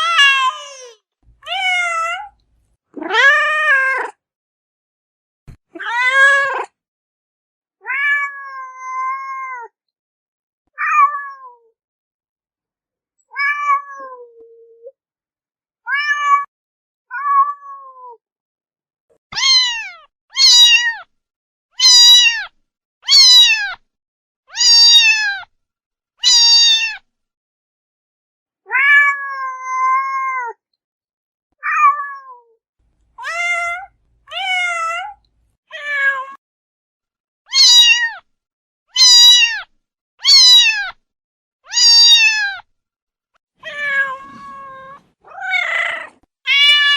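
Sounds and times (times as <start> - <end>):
cat meowing: 0.0 - 2.4, 3.0 - 4.2, 5.7 - 6.7, 7.8 - 9.8, 10.8 - 11.7, 13.3 - 14.3, 15.9 - 16.5, 17.1 - 18.2, 19.3 - 21.1, 21.8 - 23.8, 24.5 - 25.5, 26.2 - 27.0, 28.7 - 30.6, 31.6 - 32.4, 33.2 - 36.4, 37.5 - 38.2, 38.9 - 41.0, 41.7 - 42.6, 43.6 - 46.9.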